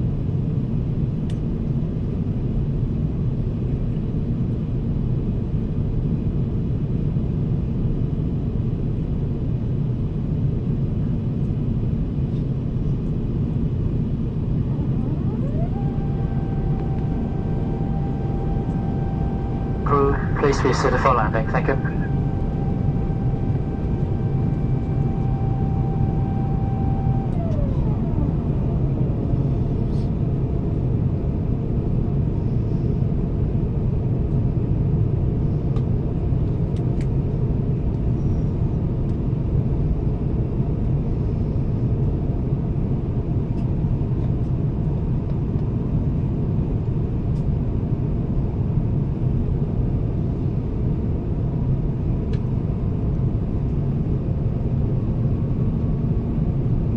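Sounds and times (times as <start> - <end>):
airliner cabin rumble: 0.0 - 56.9
thin whine gliding down: 14.3 - 31.6.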